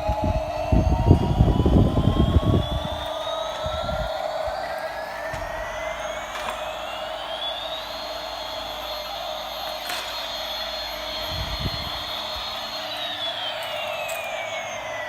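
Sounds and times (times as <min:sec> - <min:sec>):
constant hum: 0:00.0 - 0:15.0
toy airplane whine: 0:00.0 - 0:15.0.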